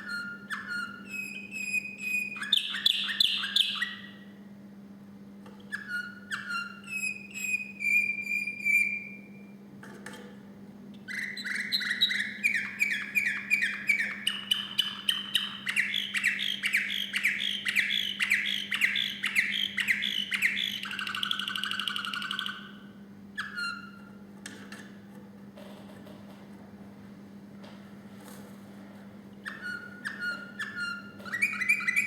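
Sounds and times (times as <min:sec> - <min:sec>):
canary singing: 0:00.0 - 0:04.3, 0:05.7 - 0:09.5, 0:11.0 - 0:24.2, 0:29.4 - 0:32.0.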